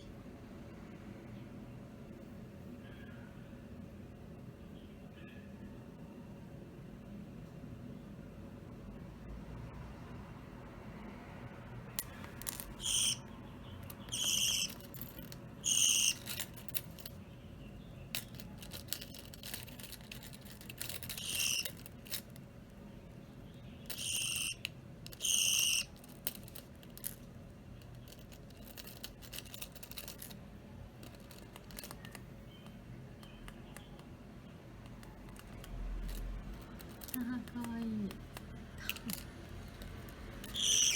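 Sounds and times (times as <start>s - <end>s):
budgerigars calling: 12.8s - 13.2s, 14.1s - 14.7s, 15.6s - 16.2s, 21.2s - 21.7s, 24.0s - 24.6s, 25.2s - 25.9s, 40.5s - 40.9s
small clicks and taps: 34.8s - 40.6s.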